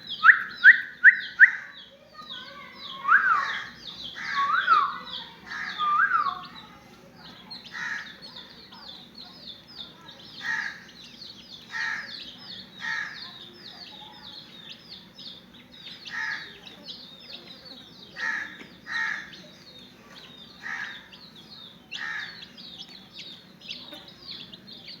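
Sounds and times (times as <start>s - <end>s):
lower bird call: 0.0s - 1.8s, 2.8s - 6.6s
chicks peeping: 0.0s - 25.0s.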